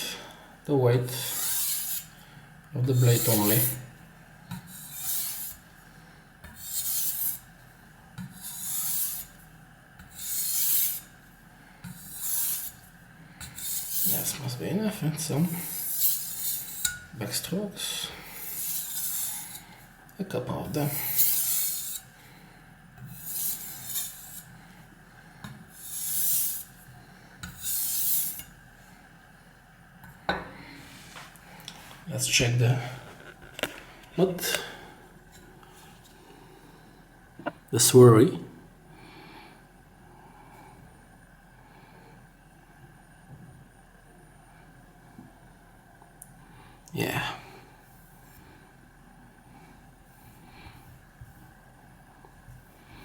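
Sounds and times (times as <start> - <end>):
knife stroked across water stone: 1.2 - 2.2, 4.5 - 5.6, 6.4 - 7.4, 8.2 - 9.4, 10.0 - 11.1, 11.8 - 12.8, 13.4 - 14.4, 15.6 - 17.0, 18.4 - 19.7, 20.9 - 22.1, 23.0 - 24.6, 25.8 - 26.8.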